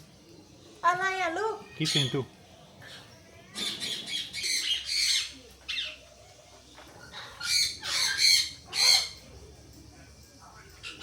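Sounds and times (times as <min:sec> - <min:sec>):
bird squawking: 0:07.0 - 0:09.2.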